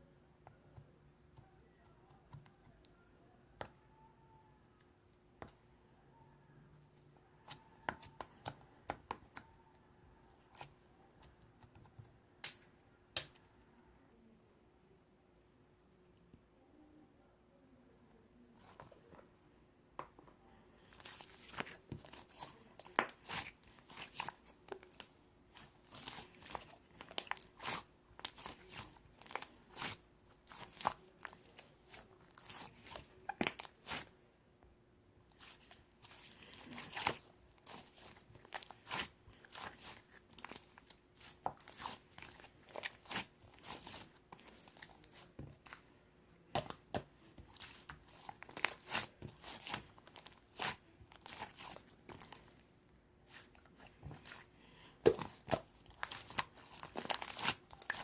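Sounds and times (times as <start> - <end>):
slime crackling and popping: 55.0 - 58.0.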